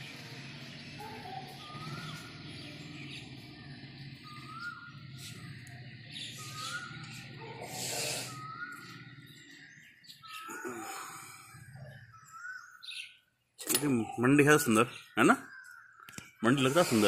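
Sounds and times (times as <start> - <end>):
bird whistled call: 4.2 - 13.2.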